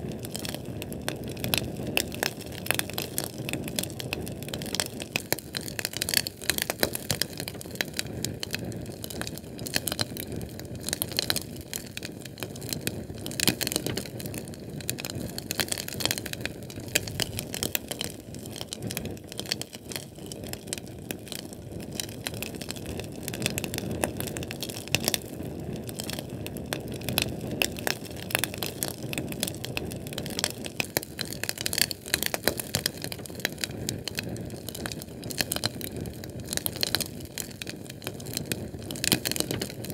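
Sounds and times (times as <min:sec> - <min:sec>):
crackling pops and snaps: 0:00.0 - 0:39.9
low rush of flame: 0:06.8 - 0:39.9.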